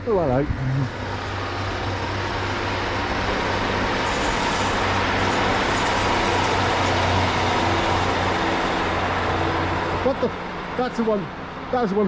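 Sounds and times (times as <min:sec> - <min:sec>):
diesel engine drone: 0:00.0 - 0:12.0
train rumbling: 0:00.0 - 0:12.0
thin high whine: 0:04.0 - 0:06.6.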